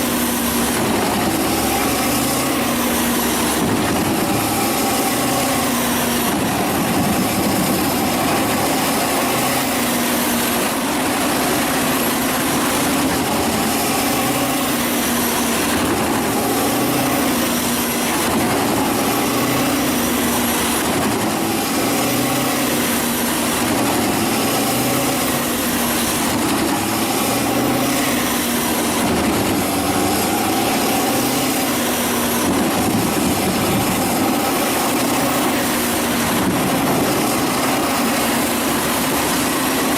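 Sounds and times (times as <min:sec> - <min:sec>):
wood chipper running: 0:00.0 - 0:39.9.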